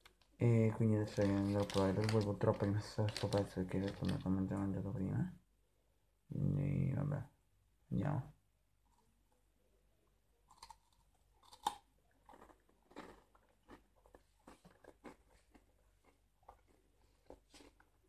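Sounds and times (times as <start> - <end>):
person chewing crunchy snack: 10.5 - 18.0.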